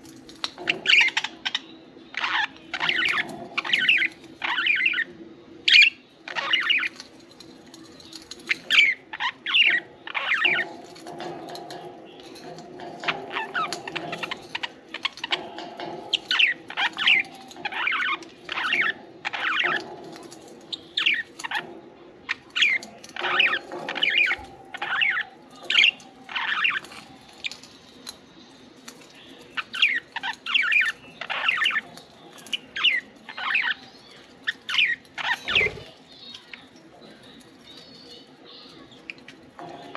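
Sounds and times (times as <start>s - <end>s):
soft continuous murmur: 0.0s - 39.9s
budgerigars chirping: 0.6s - 5.1s, 12.5s - 20.2s, 22.3s - 27.6s, 29.6s - 36.6s.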